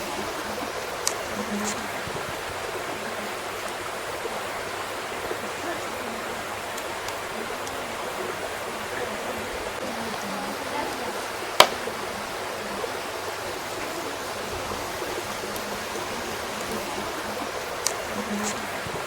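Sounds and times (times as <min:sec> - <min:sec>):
loud sharp fire pop: 0:11.6 - 0:11.9.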